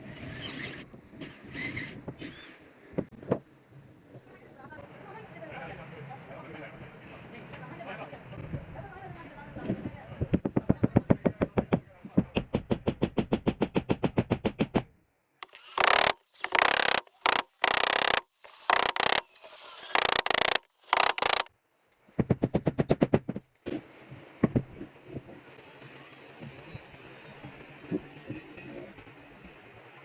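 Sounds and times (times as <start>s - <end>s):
rapid tool taps: 10.4s - 21.5s.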